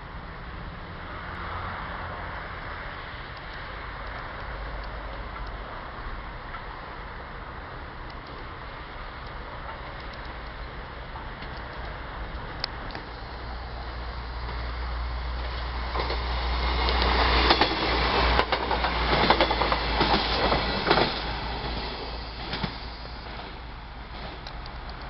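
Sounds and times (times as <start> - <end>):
diesel train rumble: 0.0 - 25.0
wheels clacking over rail joints: 7.9 - 25.0.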